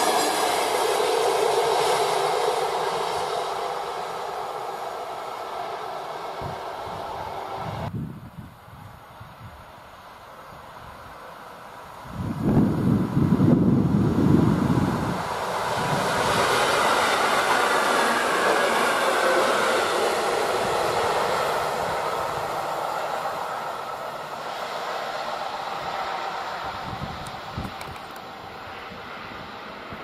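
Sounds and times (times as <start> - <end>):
train passing at speed: 0.0 - 30.0
wind buffeting microphone: 6.4 - 9.7, 12.0 - 18.5, 25.7 - 30.0.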